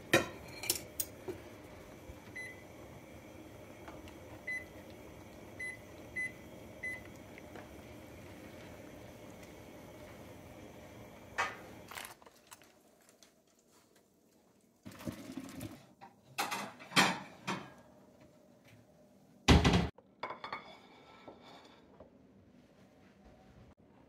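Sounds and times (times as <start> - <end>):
dishes and utensils clinking: 0.1 - 1.2, 20.2 - 21.9.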